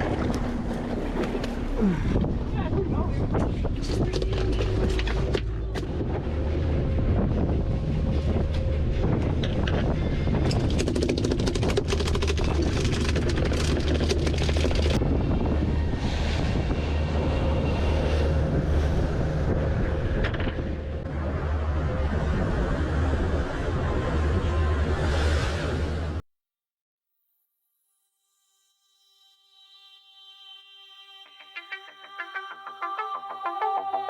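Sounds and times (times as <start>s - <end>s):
boat engine running: 0.0s - 26.2s
wind buffeting microphone: 0.0s - 26.2s.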